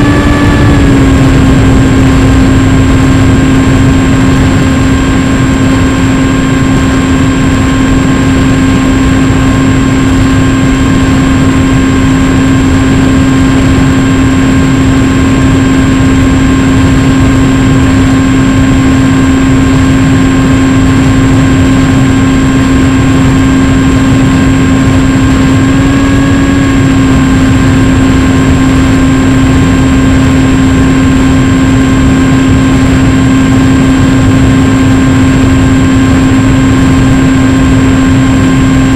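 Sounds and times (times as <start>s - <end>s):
rush of air: 0.0s - 14.8s
model plane motor hum: 0.0s - 38.9s.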